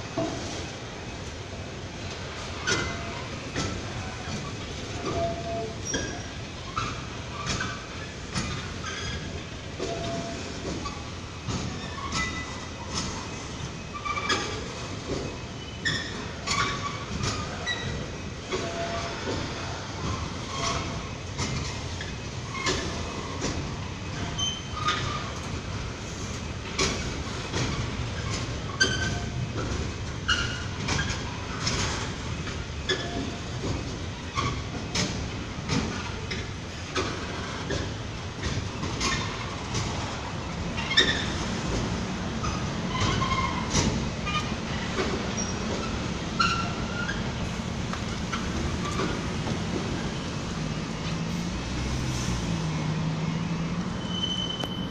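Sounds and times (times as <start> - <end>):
train wheels clicking over rail joints: 0.0 - 54.9
train wheels squealing: 2.5 - 25.4, 26.0 - 34.8, 40.8 - 41.7, 42.4 - 50.4, 53.9 - 54.9
idling road traffic hum: 24.8 - 54.9.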